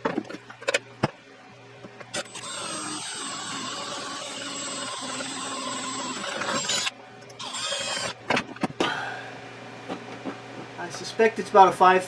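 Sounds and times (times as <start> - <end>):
small power tool whining: 2.1 - 8.5.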